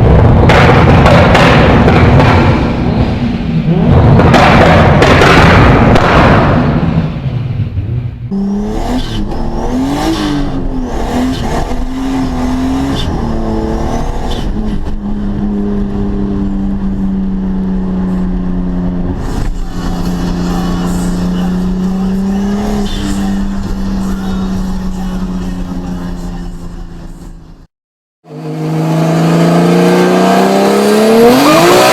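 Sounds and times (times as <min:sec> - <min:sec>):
car engine revving: 0:00.0 - 0:07.3, 0:08.3 - 0:31.9
loud boom: 0:00.0 - 0:08.3.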